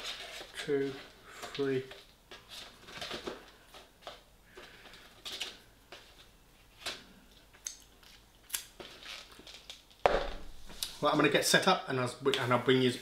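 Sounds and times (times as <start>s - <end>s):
food packaging rustling and clicking: 0.0s - 10.0s.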